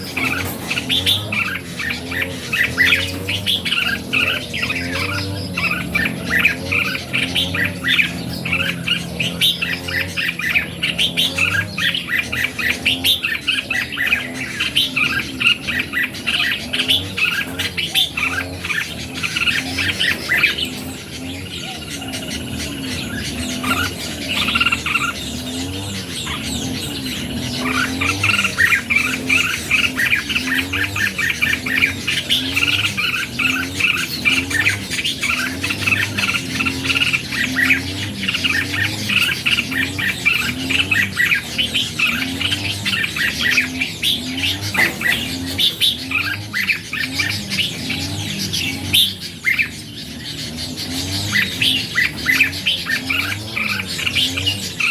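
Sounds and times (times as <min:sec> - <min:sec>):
birds chirping and warbling: 0:00.0 - 0:54.9.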